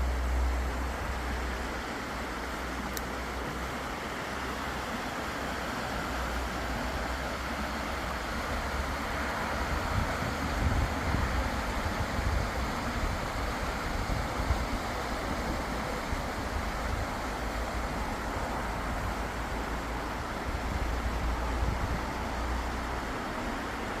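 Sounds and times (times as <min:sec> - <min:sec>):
steady rushing noise: 0:00.0 - 0:24.0
wind buffeting microphone: 0:09.5 - 0:19.6.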